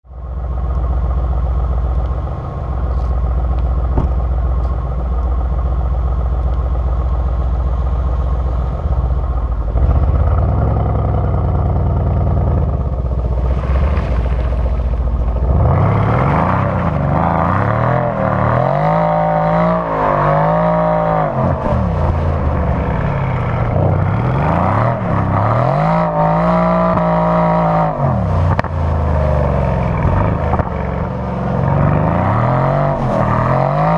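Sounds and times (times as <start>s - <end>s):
car engine revving: 0.2s - 33.9s.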